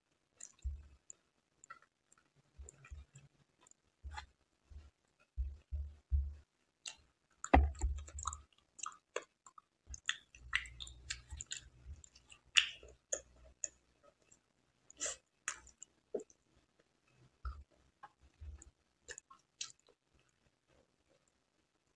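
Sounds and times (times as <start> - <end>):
wet chewing and mouth smacks: 0.4 - 16.4, 17.5 - 20.4
dull thumps: 7.5 - 8.1.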